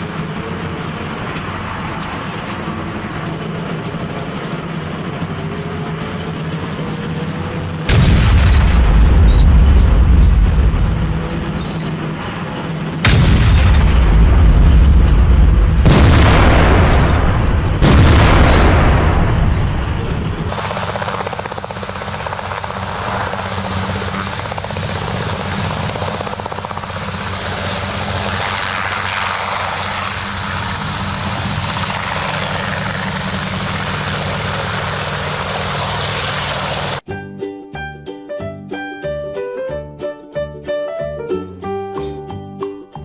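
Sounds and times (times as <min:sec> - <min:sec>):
helicopter rotor and engine: 0:00.0 - 0:37.0
blast rumble: 0:07.8 - 0:37.0.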